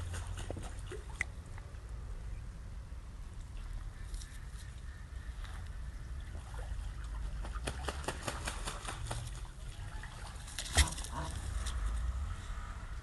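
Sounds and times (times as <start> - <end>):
ducks splashing on water: 0.0 - 1.5, 3.4 - 12.2
low steady rumble: 0.0 - 7.5, 9.1 - 13.0.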